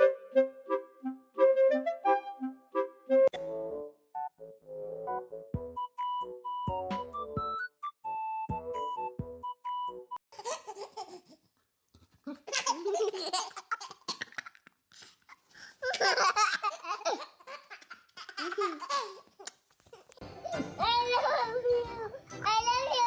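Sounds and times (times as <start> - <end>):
baby laughing: 10.3 - 11.4, 12.3 - 20.6.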